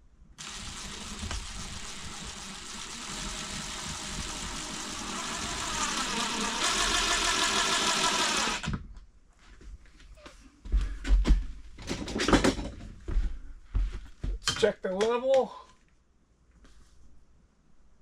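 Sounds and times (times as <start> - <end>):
power drill running: 0.4 - 8.8.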